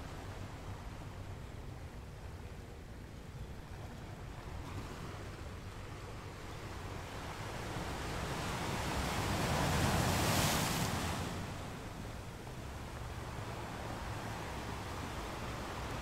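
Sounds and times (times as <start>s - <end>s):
ocean surf washing ashore: 6.2s - 16.0s.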